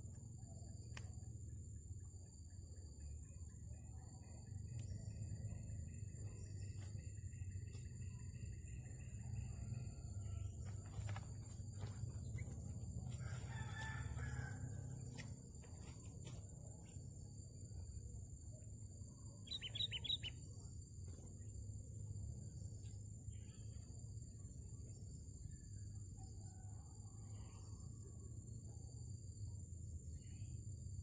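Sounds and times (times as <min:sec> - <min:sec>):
steady low rumble: 0:00.0 - 0:13.5
rooster crowing: 0:13.1 - 0:15.1
short high bird chirps: 0:19.4 - 0:20.3.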